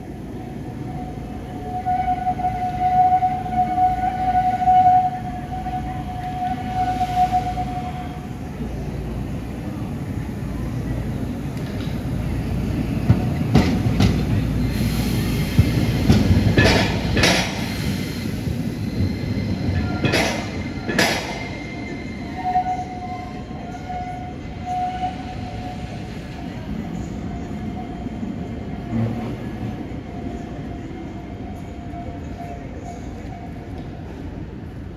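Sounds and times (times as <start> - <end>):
tram high tone: 0.0 - 34.9
tram wheels clacking over rail joints: 11.2 - 21.7.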